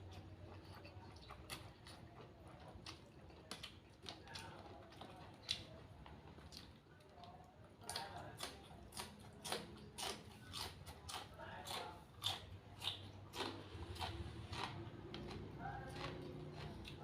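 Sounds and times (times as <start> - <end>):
person chewing and smacking: 0.0 - 17.0.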